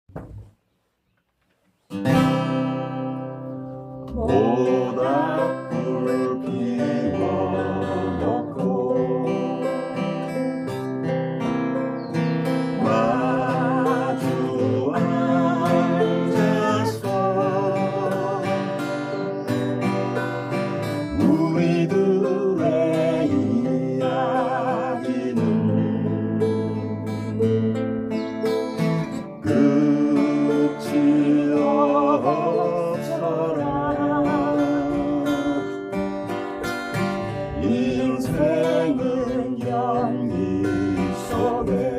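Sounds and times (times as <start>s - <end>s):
acoustic guitar strumming: 1.8s - 41.9s
woman singing: 4.1s - 9.7s, 12.8s - 19.3s, 29.5s - 35.8s, 37.5s - 41.9s
ukulele strumming: 4.1s - 41.9s.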